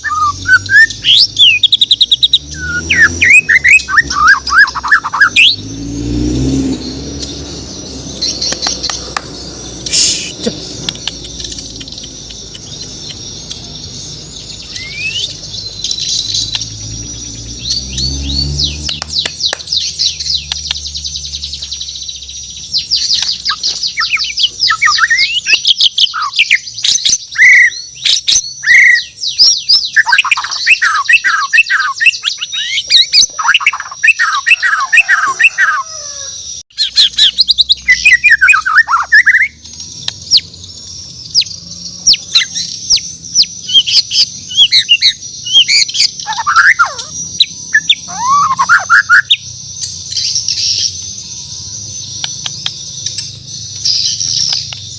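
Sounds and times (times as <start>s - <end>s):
bird singing chirps and trills: 0.0s - 54.9s.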